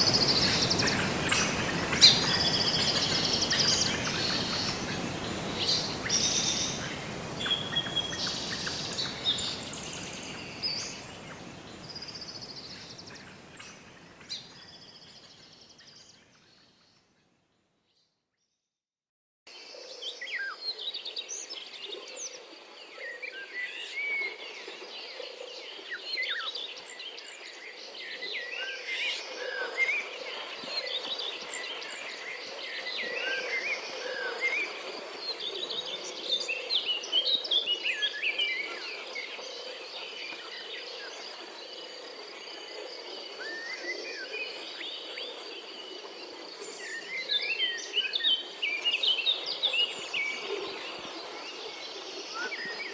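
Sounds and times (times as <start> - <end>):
birds chirping and calling: 0.0 - 13.8.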